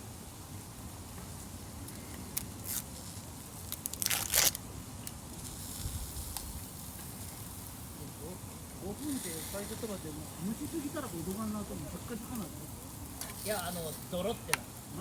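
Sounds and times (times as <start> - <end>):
packaging tearing: 3.7 - 4.6.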